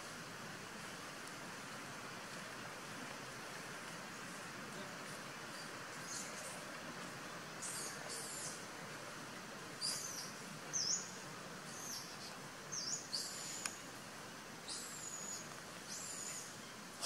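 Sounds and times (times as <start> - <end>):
steady outdoor hiss: 0.0 - 17.0
bird calling: 7.6 - 8.6, 9.8 - 13.8, 14.6 - 16.6.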